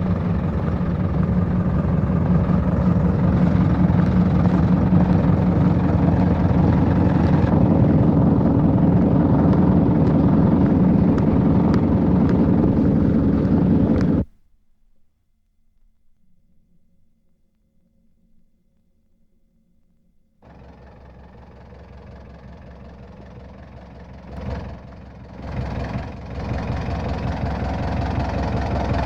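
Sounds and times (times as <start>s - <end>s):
tractor engine idling: 0.0s - 14.3s, 20.4s - 29.0s.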